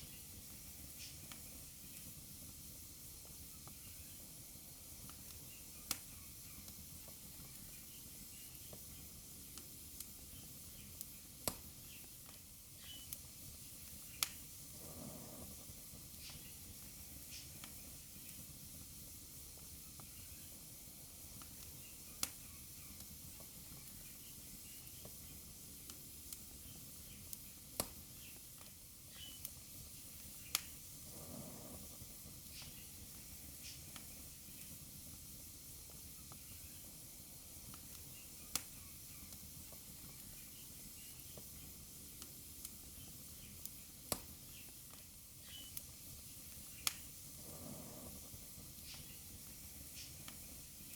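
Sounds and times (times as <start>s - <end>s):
wood fire crackling: 0.0s - 50.9s
flame rushing: 13.8s - 18.5s, 27.8s - 35.2s, 44.1s - 50.9s.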